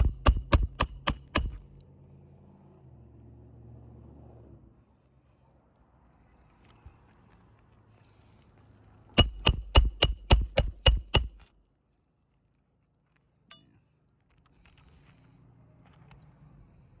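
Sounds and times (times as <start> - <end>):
hammer striking metal: 0.0 - 1.6, 9.2 - 11.5
light metallic clink: 13.5 - 13.8.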